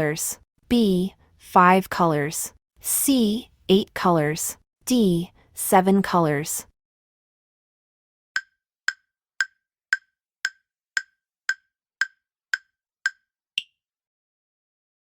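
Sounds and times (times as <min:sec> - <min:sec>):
wood-block-like timer ticks: 0:08.4 - 0:13.8.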